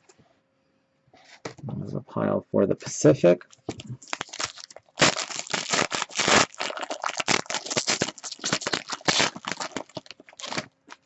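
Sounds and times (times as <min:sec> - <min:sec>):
card pack wrapper crinkling: 0:03.5 - 0:11.0.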